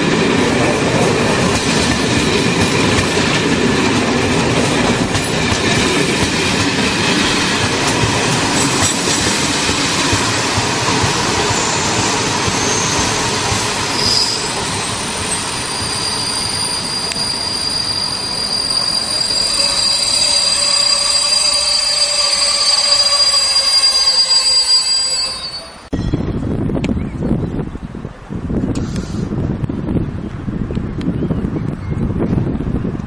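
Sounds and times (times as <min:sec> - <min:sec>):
train coaches rolling on rails: 0:00.0 - 0:26.2
metallic wheel squeal: 0:11.5 - 0:13.2, 0:14.0 - 0:14.6, 0:15.3 - 0:26.3.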